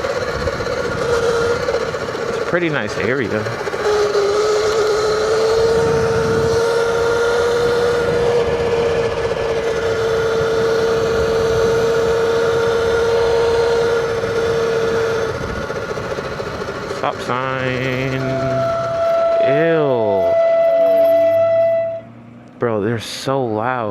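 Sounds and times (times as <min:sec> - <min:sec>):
electric motor whining: 0:00.0 - 0:22.6
wind and tyre noise: 0:00.0 - 0:23.9.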